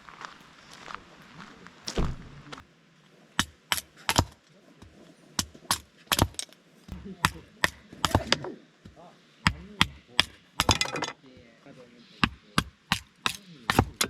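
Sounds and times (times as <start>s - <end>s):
hard objects knocking: 5.4s - 11.2s.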